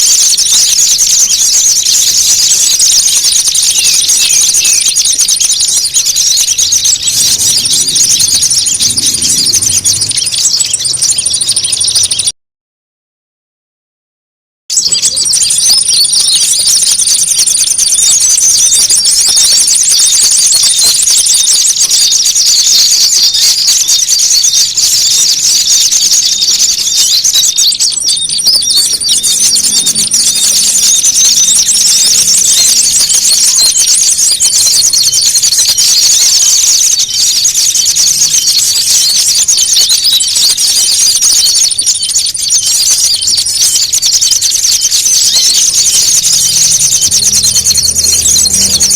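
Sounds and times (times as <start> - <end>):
songbirds chattering: 0.0 - 12.3, 14.7 - 48.9.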